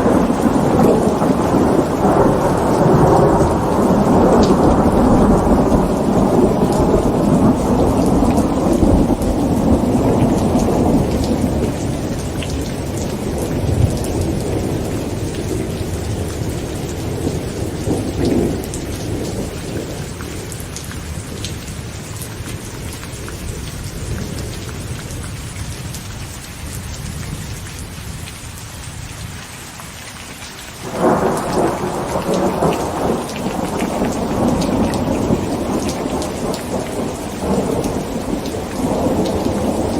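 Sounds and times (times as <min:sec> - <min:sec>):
rolling thunder: 0:00.0 - 0:21.5, 0:30.8 - 0:39.9
rain drumming on tent fabric: 0:00.0 - 0:39.9.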